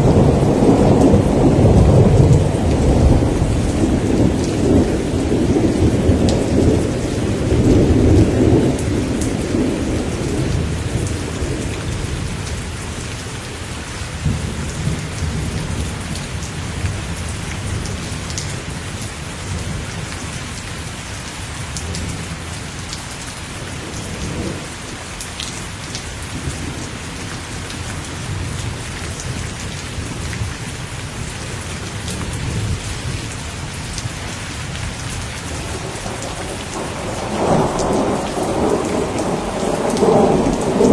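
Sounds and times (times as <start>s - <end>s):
thunder rumbling: 0.0s - 12.5s, 28.1s - 40.9s
steady rain pattering: 0.0s - 40.9s.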